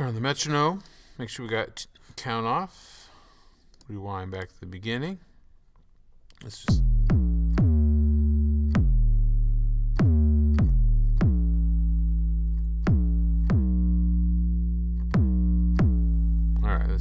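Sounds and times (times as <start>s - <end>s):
synthesizer bass notes: 6.7s - 17.0s.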